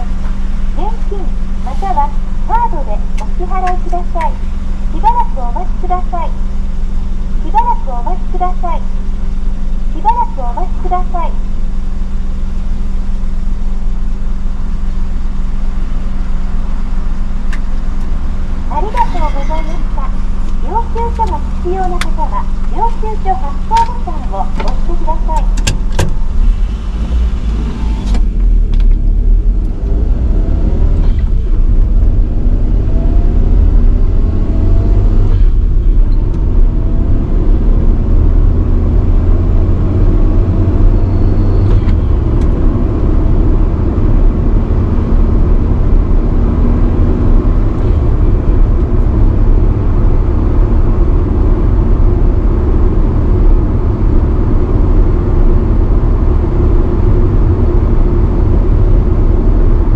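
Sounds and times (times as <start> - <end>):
car engine accelerating: 0.0 - 59.9
road noise: 0.0 - 59.9.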